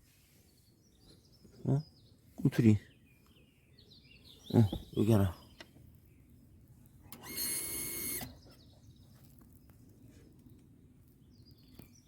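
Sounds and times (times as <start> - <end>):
small motor whine: 7.1 - 8.4.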